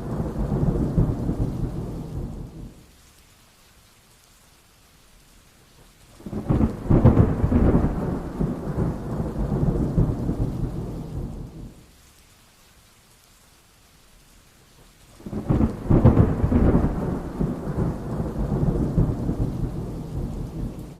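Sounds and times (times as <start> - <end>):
thunder clap and rumble: 0.0 - 2.8, 6.2 - 11.8, 15.2 - 20.9
steady light rain: 0.0 - 20.9.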